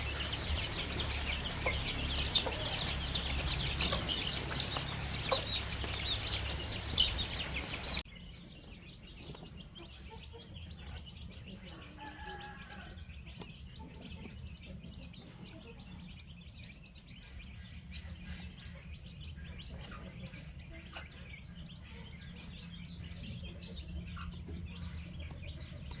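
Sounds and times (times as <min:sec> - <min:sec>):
low rumble: 0:00.0 - 0:08.0
baby chicks peeping: 0:00.0 - 0:26.0.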